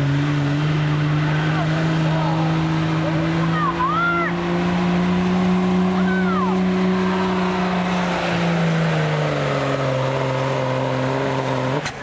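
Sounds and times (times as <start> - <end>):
diesel truck engine running hard: 0.0 - 12.0.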